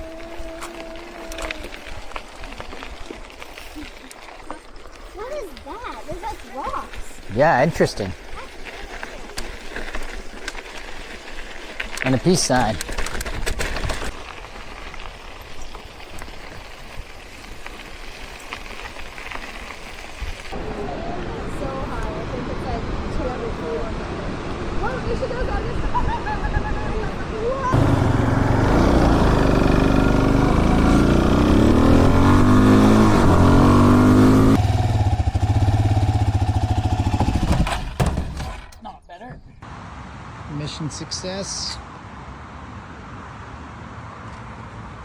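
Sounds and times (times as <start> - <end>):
bicycle tyres rolling on trail: 0.0 - 38.7
vehicle passing by: 27.7 - 37.4
vehicle engine running loudly: 27.7 - 37.7.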